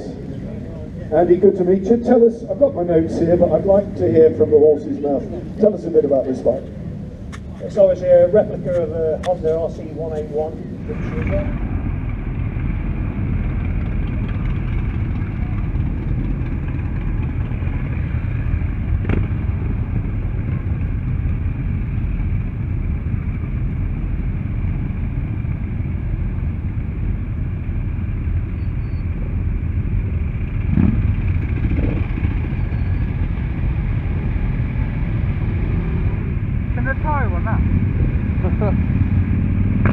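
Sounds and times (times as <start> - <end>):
motorcycle engine running: 10.8 - 39.9.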